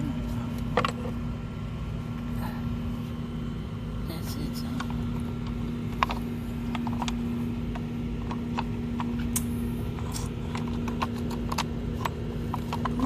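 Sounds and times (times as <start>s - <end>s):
steady low hum: 0.0s - 13.0s
tools clicking and tapping: 4.8s - 13.0s.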